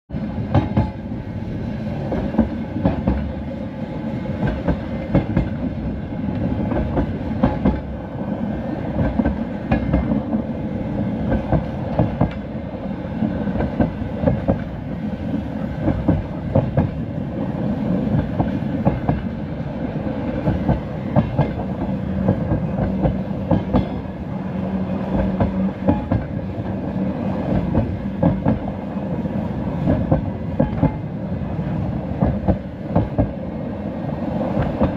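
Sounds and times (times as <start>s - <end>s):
train carriage rumbling: 0.1s - 34.9s
wheels clicking over rail joints: 20.2s - 24.2s.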